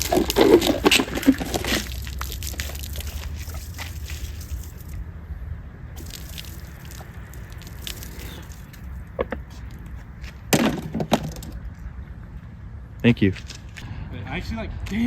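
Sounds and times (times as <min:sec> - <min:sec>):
liquid dripping and splattering: 0:00.0 - 0:04.9, 0:06.0 - 0:08.9
steady low rumble: 0:00.0 - 0:10.5.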